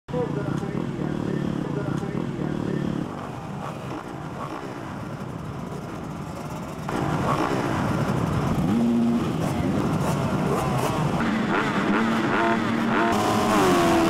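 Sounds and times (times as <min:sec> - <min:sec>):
motocross bikes revving: 0:00.1 - 0:14.0.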